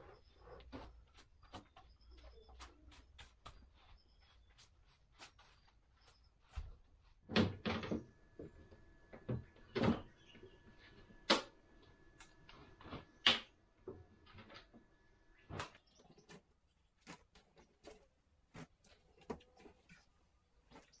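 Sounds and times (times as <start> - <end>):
objects knocking and clunking: 6.6 - 21.0.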